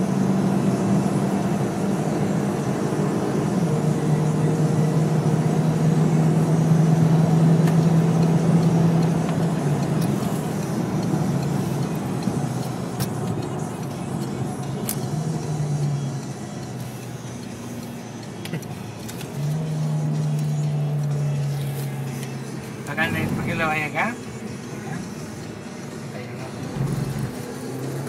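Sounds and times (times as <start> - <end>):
car engine droning: 0.0 - 28.0
tyre and road noise: 5.6 - 28.0.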